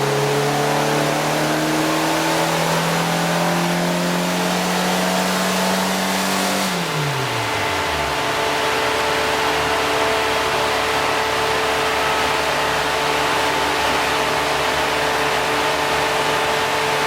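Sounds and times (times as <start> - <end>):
car engine idling: 6.7 - 17.0
high whine: 6.7 - 17.0.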